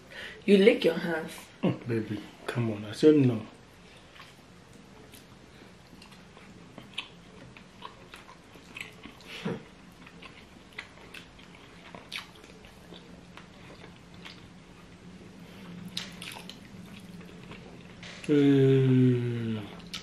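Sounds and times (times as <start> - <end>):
faint steady hum: 0.0 - 20.0
chewing: 4.0 - 18.3, 19.6 - 20.0
wet smacks and clicks: 15.9 - 16.7.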